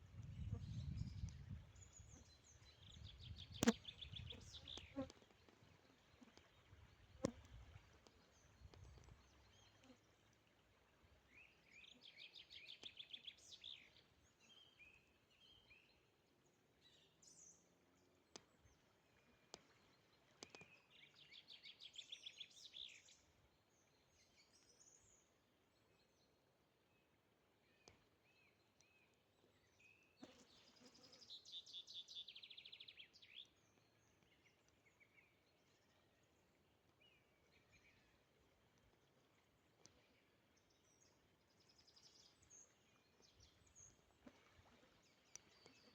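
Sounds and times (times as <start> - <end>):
songbird singing: 0.0 - 10.6, 11.3 - 16.0, 19.5 - 23.2, 27.6 - 38.2.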